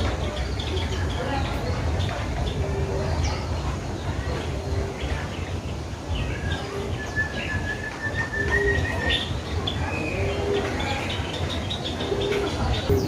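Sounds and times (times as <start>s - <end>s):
bird cooing: 8.1s - 9.1s, 11.8s - 13.0s.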